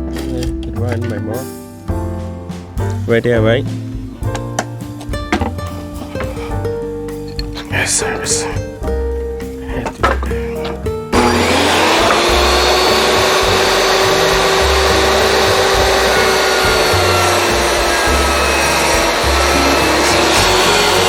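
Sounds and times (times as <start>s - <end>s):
faint background music: 0.0s - 21.0s
power saw cutting wood: 11.1s - 21.0s.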